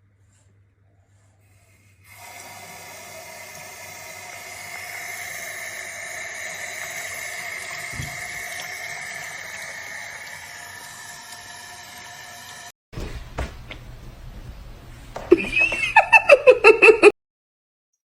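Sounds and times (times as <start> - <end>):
brief low thump: 13.0 - 14.2.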